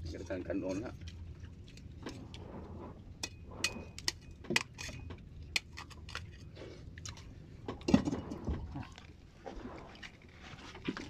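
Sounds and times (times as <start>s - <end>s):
chewing and biting close-up: 0.8s - 2.4s, 3.9s - 11.0s
small crunches and sharp clicks: 3.9s - 7.9s.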